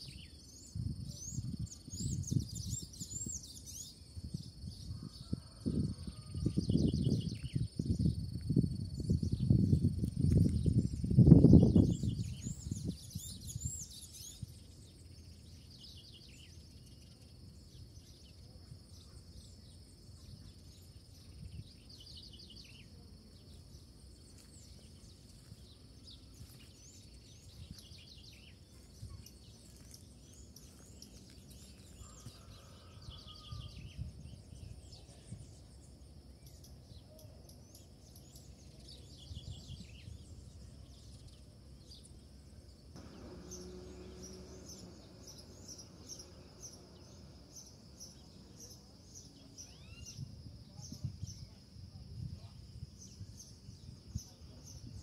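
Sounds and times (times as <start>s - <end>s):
wild birds chirping faintly: 0.0s - 55.0s
faint high whine: 43.0s - 51.6s.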